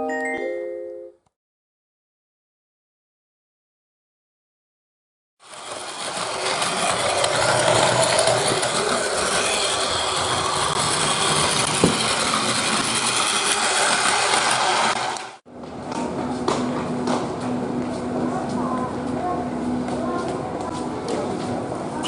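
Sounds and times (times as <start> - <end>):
train running: 5.4 - 22.0.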